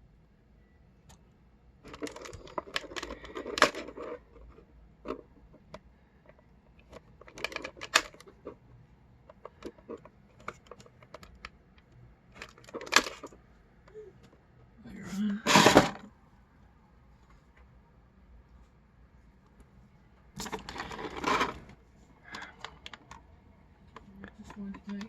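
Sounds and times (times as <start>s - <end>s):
plastic toy parts clicking: 1.9s - 4.5s, 6.8s - 8.5s, 9.3s - 13.3s.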